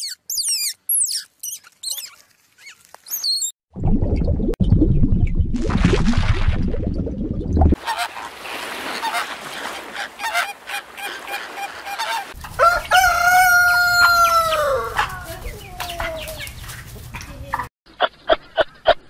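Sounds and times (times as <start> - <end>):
hens clucking: 7.8 - 18.7
rooster crowing: 11.9 - 15.3.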